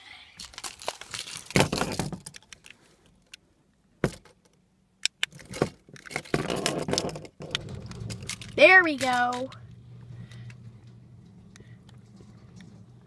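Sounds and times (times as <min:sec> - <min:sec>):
rattling clicks: 0:05.0 - 0:13.0
rustling: 0:06.1 - 0:13.0.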